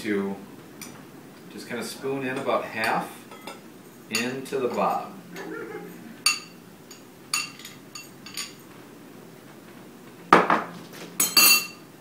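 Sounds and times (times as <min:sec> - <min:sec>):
spoon clinking against a dish: 0:02.4 - 0:05.5, 0:06.2 - 0:08.6.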